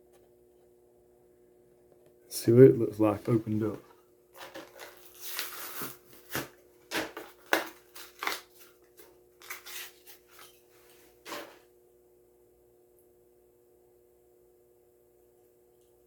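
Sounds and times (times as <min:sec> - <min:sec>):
blister pack being torn open: 0:04.4 - 0:10.6.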